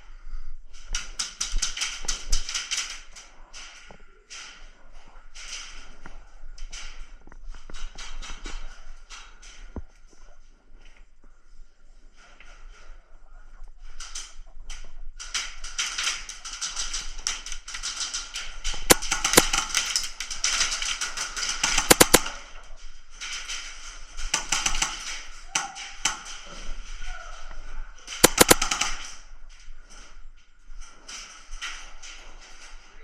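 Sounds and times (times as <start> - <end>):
sharp loud cracks: 18.9 - 20.0, 21.7 - 22.4, 28.2 - 29.1
airsoft guns firing: 18.9 - 22.5, 28.2 - 29.2.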